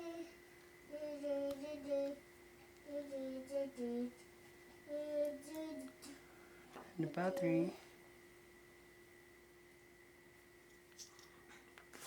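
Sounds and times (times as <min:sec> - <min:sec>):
faint steady tone: 0:00.0 - 0:11.9
person humming a tune: 0:02.8 - 0:04.3.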